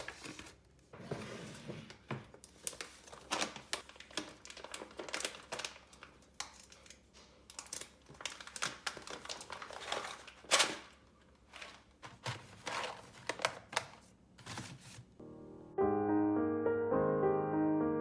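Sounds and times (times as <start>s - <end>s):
soft piano music: 15.2s - 18.0s.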